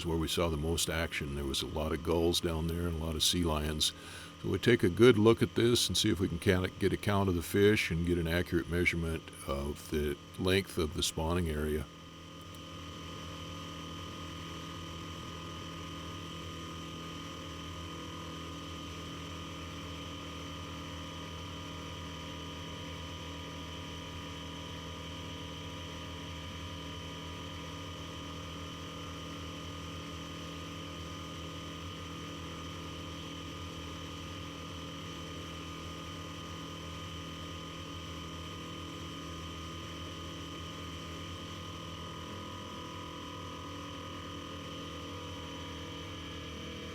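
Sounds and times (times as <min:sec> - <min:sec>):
airplane engine and propeller droning: 0:00.0 - 0:22.1, 0:32.8 - 0:46.9.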